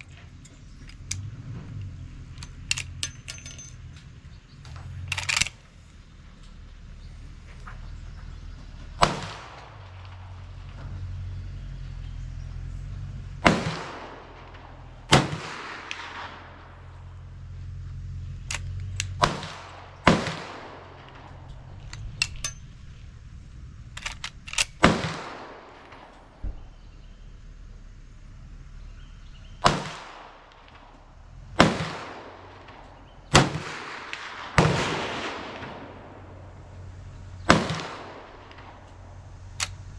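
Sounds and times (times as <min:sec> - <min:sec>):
faint clicks: 0:00.0 - 0:06.6, 0:20.9 - 0:26.6, 0:36.7 - 0:39.9
gunshots echoing: 0:05.0 - 0:05.6, 0:09.0 - 0:10.8, 0:13.4 - 0:17.2, 0:18.4 - 0:26.7, 0:29.6 - 0:39.9.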